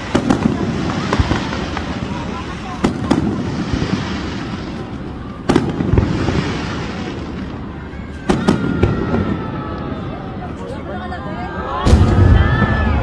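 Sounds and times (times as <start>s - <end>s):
fireworks crackling and rumbling: 0.0s - 13.0s
loud firework bang: 11.8s - 13.0s.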